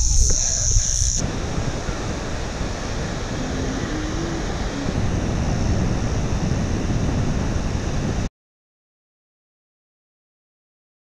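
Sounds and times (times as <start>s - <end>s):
ocean surf washing: 0.0s - 8.3s
wind buffeting microphone: 0.0s - 8.3s.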